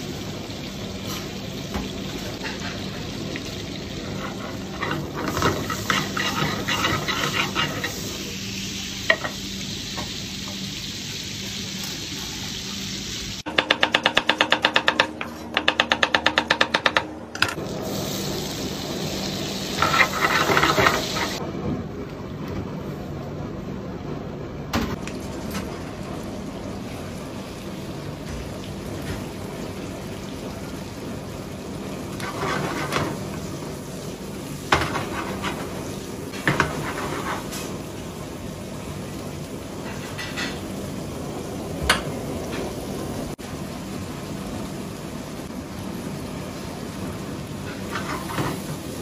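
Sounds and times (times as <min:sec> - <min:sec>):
fish sizzling in hot oil: 0:00.0 - 0:13.5, 0:17.7 - 0:21.4, 0:26.2 - 0:41.2
frying pan clattering: 0:34.7 - 0:35.7, 0:36.3 - 0:37.7.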